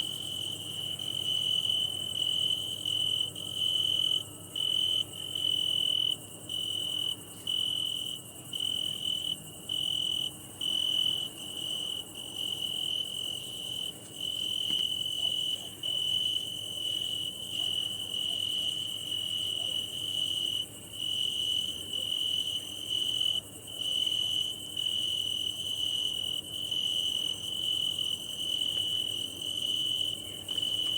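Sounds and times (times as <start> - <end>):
cricket trilling: 0.0 - 30.9.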